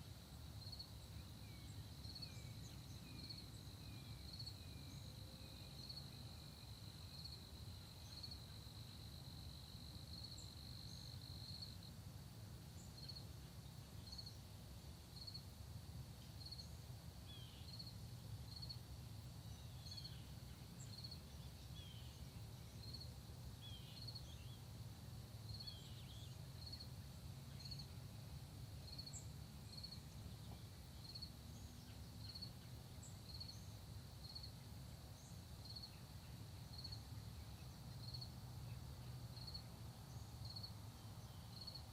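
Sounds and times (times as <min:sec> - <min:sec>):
crickets trilling: 0:39.4 - 0:41.9.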